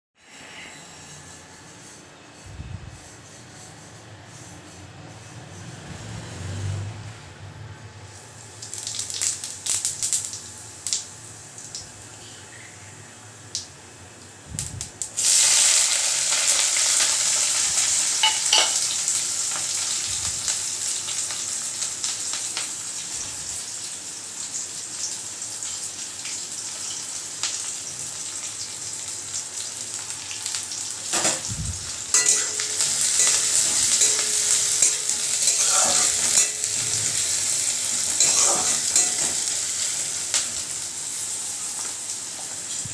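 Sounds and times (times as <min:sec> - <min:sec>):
onions sizzling in pan: 0:08.1 - 0:12.6, 0:14.6 - 0:42.9.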